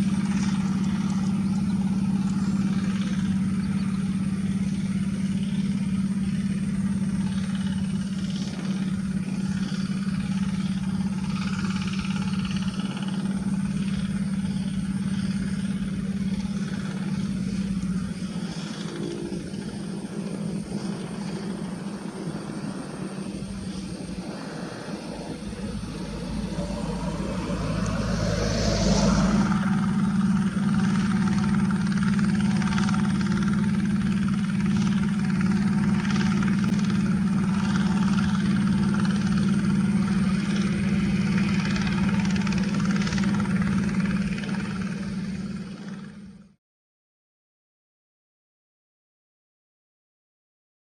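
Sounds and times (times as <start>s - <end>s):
hand tractor diesel engine running: 29.6s - 46.3s.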